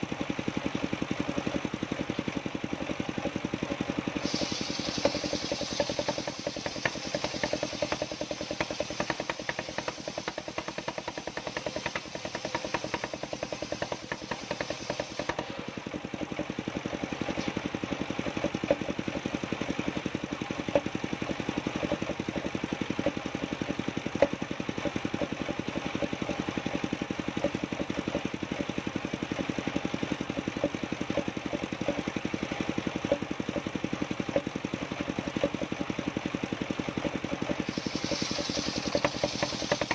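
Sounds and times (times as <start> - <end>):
engine running steadily: 0.0 - 39.9
high hiss: 4.2 - 15.3, 37.6 - 39.9.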